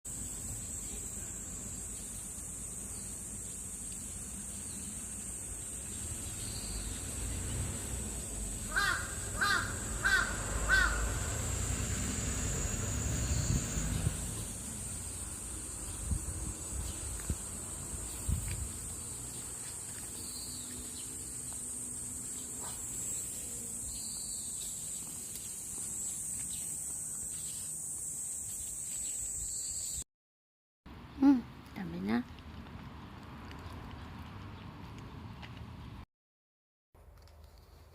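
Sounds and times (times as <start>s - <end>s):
high-pitched insect chorus: 0.1s - 30.0s
lower insect trill: 0.1s - 30.0s
crow cawing: 8.7s - 11.2s.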